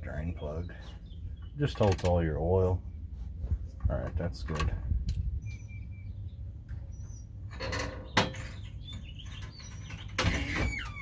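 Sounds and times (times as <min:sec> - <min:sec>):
small birds chirping: 0:00.0 - 0:03.4, 0:05.1 - 0:11.0
wind rumble on microphone: 0:02.8 - 0:11.0
rustling noise: 0:03.1 - 0:03.9.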